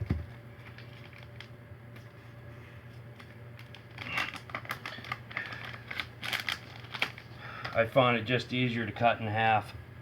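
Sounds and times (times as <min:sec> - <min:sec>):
packaging crinkling and clicking: 0:00.0 - 0:02.1, 0:03.0 - 0:07.9
steady low hum: 0:00.0 - 0:10.0.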